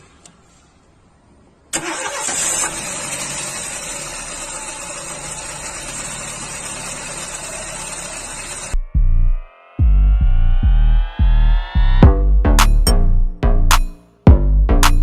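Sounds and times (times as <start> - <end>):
vehicle engine running: 3.2 - 12.1.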